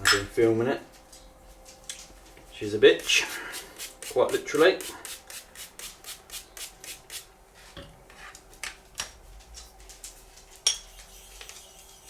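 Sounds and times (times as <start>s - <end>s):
razor scraping on a hone: 2.8s - 7.3s.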